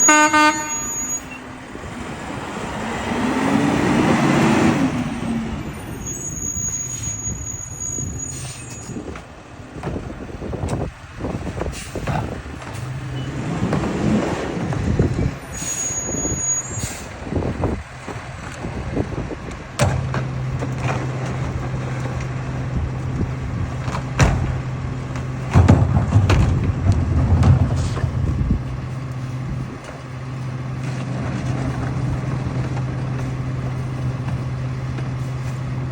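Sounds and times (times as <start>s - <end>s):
short high-pitched tones: 0.0s - 1.4s
garbage truck engine: 0.0s - 35.9s.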